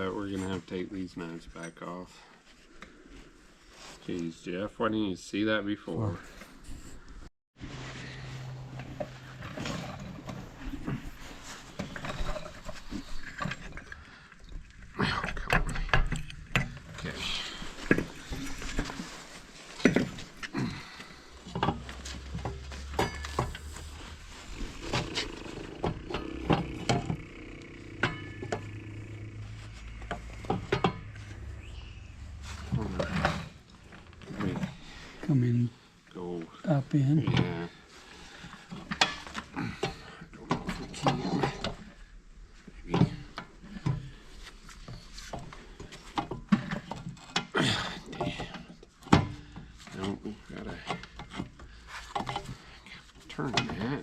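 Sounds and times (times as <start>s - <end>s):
metal tools clanking: 15.0s - 35.3s
steady low hum: 16.2s - 36.2s
metal scrape: 21.2s - 35.2s.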